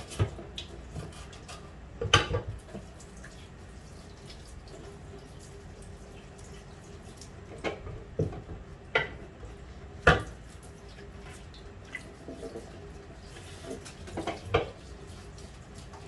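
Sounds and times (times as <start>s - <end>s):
kitchen things knocking and clattering: 2.0s - 2.6s
water dripping: 2.6s - 9.1s, 10.1s - 16.0s.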